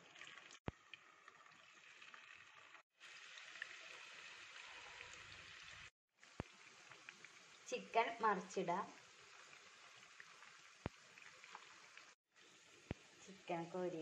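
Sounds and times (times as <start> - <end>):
chicken sizzling in a pan: 3.0 - 14.0.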